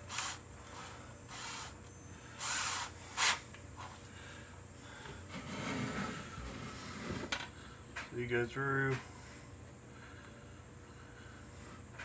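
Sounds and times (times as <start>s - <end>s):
objects scraping on a workbench: 5.3s - 7.4s.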